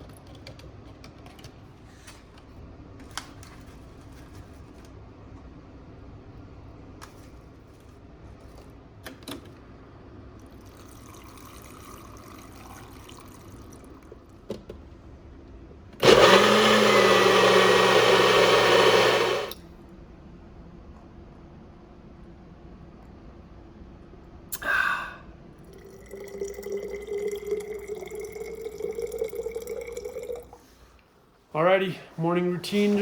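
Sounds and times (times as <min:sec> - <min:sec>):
blender motor whine: 0:16.0 - 0:19.5.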